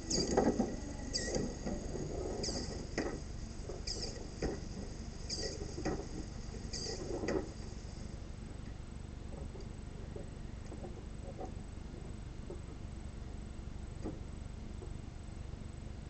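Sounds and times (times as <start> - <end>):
short high squeak: 0.0 - 1.6, 2.3 - 2.8, 3.8 - 4.3, 5.2 - 5.6, 6.7 - 7.1.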